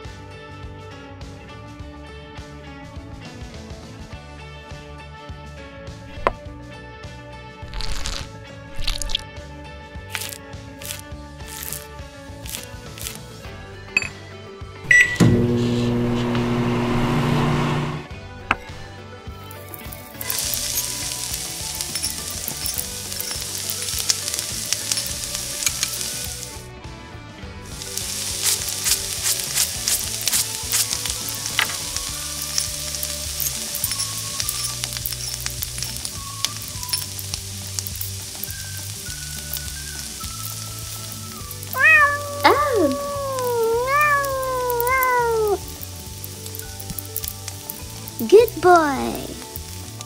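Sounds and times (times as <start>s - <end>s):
food sizzling in a pan: 7.6s - 9.2s, 10.1s - 14.1s, 19.4s - 26.7s, 27.6s - 50.0s
pet crying: 41.7s - 45.7s.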